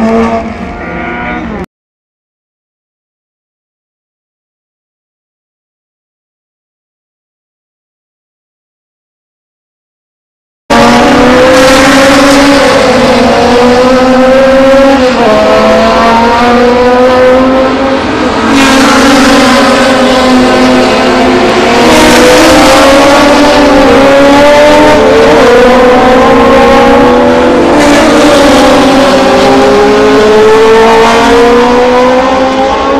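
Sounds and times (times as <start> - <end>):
racing car engine accelerating: 0.0 - 1.7, 10.7 - 32.9.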